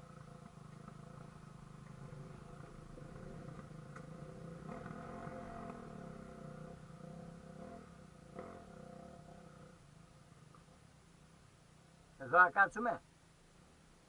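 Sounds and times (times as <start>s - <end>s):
dirt bike engine idling: 0.0s - 10.8s.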